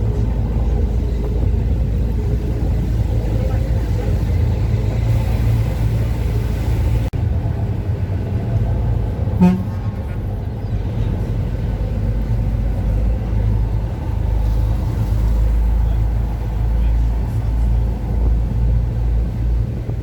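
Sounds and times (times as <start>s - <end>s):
boat rumble: 0.0s - 20.0s
wind buffeting microphone: 0.0s - 20.0s
horn toot: 9.4s - 10.2s.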